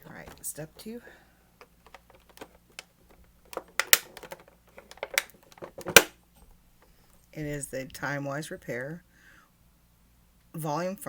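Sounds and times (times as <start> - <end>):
box and plastic bottle clicking: 1.6 - 6.1.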